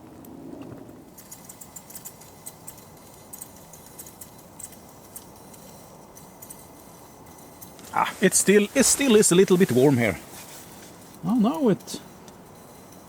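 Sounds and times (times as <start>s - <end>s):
heater burning with hiss: 0.0s - 13.0s.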